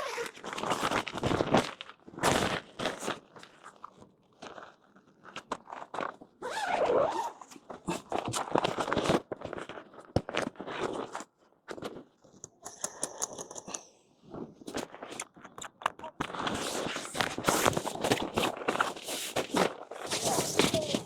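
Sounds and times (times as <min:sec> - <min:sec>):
tent fabric rustling and scraping: 0:16.4 - 0:21.0.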